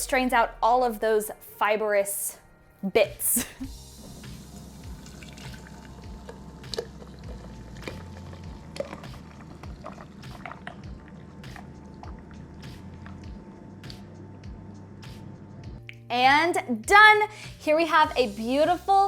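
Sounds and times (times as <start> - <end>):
liquid dripping and splatting: 4.8 - 12.8.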